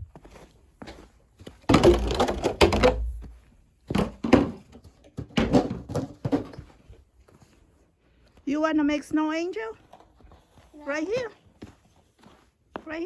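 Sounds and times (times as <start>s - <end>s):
footsteps crunching in snow: 10.1s - 13.0s.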